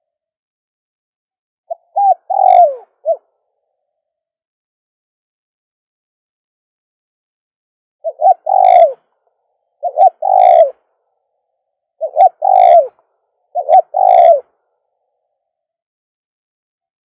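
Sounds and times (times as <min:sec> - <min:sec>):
dove cooing: 0:01.7 - 0:03.4, 0:08.0 - 0:09.1, 0:09.8 - 0:10.8, 0:12.0 - 0:14.6.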